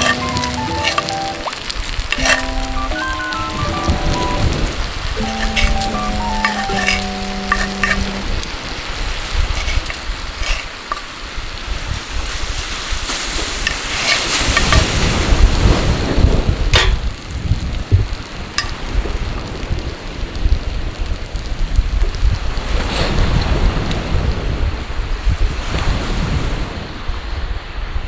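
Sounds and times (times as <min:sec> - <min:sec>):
steak sizzling in a pan: 0:00.0 - 0:08.5, 0:09.1 - 0:11.5, 0:13.1 - 0:14.8
held musical notes: 0:00.0 - 0:08.6
sharp crackles: 0:00.0 - 0:12.1.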